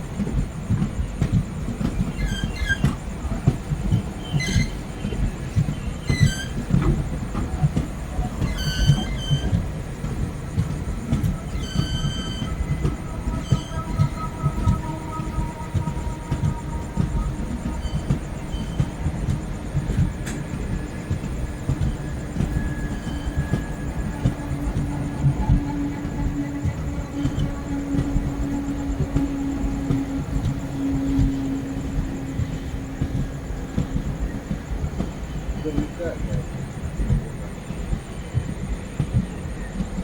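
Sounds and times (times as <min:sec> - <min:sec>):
train wheels rumbling: 0:00.0 - 0:40.0
high-pitched wheel squeals: 0:02.1 - 0:03.0, 0:04.2 - 0:05.0, 0:06.0 - 0:06.8, 0:08.4 - 0:09.6, 0:11.2 - 0:19.0, 0:21.8 - 0:33.2.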